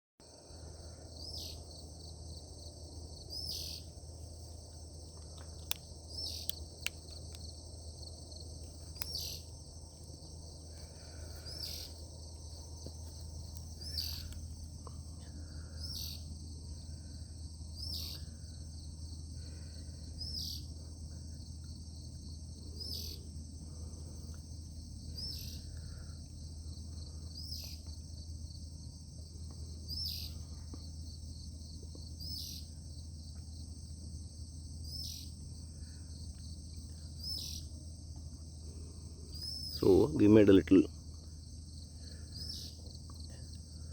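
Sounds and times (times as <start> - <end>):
insects trilling: 0.2 - 43.9
low hum: 0.3 - 34.6
sharp clicks: 5.3 - 7.4, 8.9 - 9.2.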